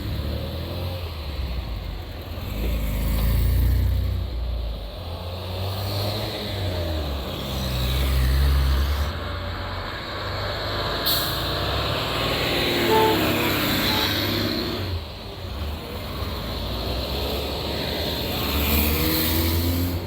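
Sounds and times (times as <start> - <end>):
brief tone: 12.8 - 14.1.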